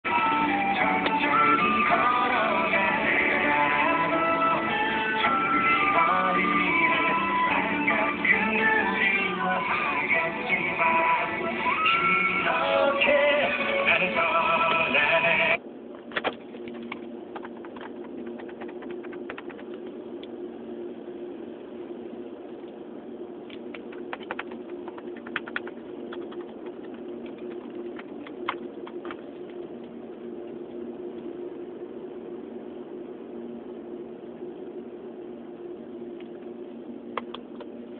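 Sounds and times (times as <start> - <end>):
steady low hum: 0.0 - 37.9
car stereo music: 0.1 - 15.6
sharp clicks: 23.5 - 29.2.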